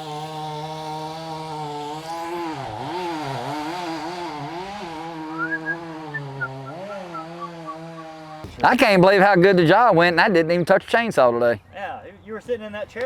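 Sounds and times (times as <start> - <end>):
chainsaw running at high revs: 0.0 - 8.6.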